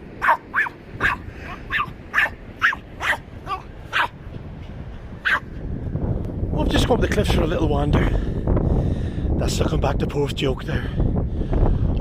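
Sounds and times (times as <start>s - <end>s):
dog barking: 0.2s - 4.2s, 5.2s - 5.5s.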